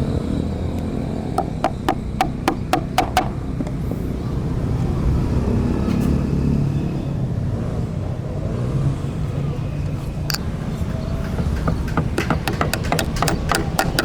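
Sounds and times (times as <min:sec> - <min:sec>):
low traffic rumble: 0:00.0 - 0:14.0
hammer tapping with ring: 0:01.4 - 0:03.4, 0:10.3 - 0:14.0.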